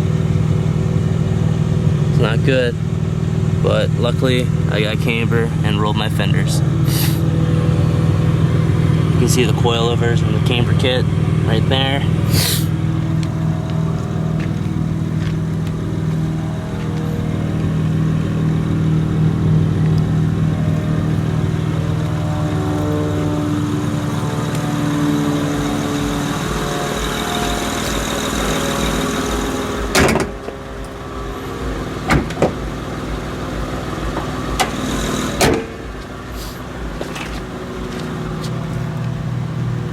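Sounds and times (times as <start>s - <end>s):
car engine running: 0.0s - 39.9s
sharp knocks: 29.9s - 30.5s.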